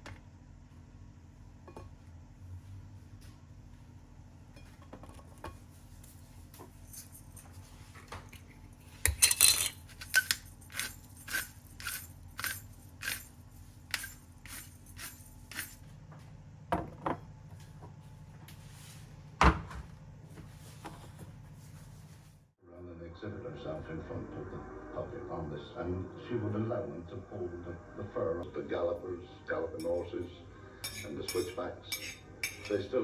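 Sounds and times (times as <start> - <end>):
metal utensil clinking on cookware: 8.3 - 15.8, 30.8 - 32.9.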